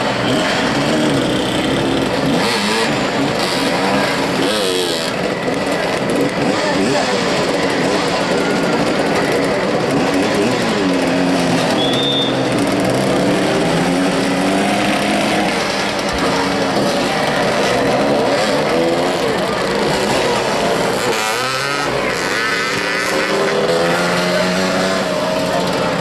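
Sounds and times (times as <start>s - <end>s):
motorcycle engines revving: 0.0s - 26.0s
short high whistle: 11.7s - 12.4s.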